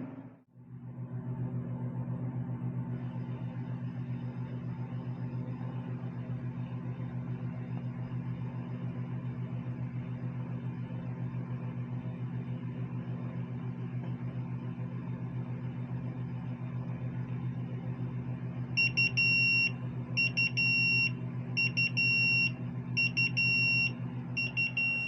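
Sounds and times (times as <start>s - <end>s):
steady low hum: 0.0s - 25.0s
electronic alarm beeping: 18.8s - 25.0s.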